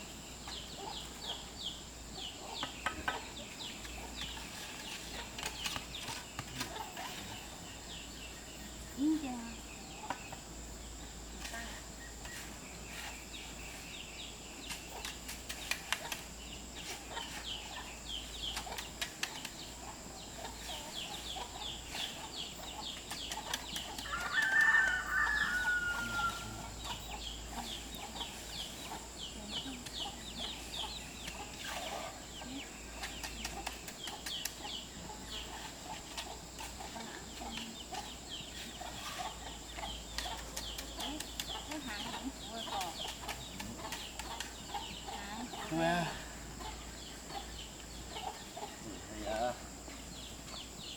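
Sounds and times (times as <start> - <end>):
chickens clucking: 2.1 - 8.0, 14.6 - 50.9
rooster crowing: 24.0 - 26.8.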